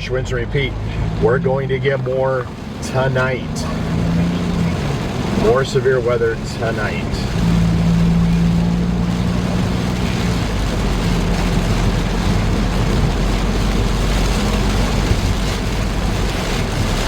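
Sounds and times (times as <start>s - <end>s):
car tyres and engine at highway speed: 0.0s - 17.0s.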